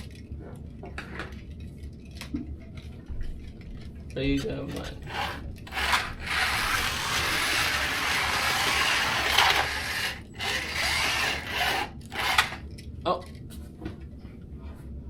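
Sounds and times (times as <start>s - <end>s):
cars rattling on plastic track: 5.0s - 12.6s
slot car motors whirring: 5.0s - 12.6s.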